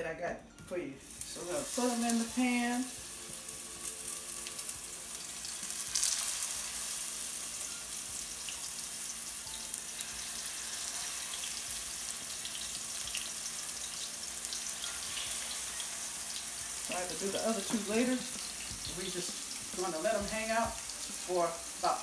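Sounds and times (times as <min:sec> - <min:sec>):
patties sizzling in hot oil: 0:00.7 - 0:22.0.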